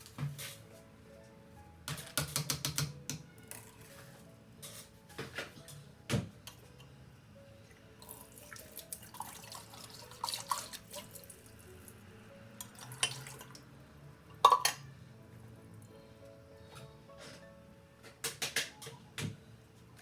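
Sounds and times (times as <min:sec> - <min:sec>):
tap water running into sink: 0:08.0 - 0:11.4.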